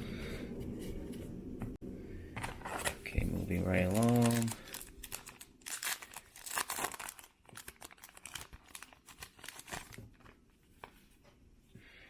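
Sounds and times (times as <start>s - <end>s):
wrapper crinkling and tearing: 3.5s - 10.4s.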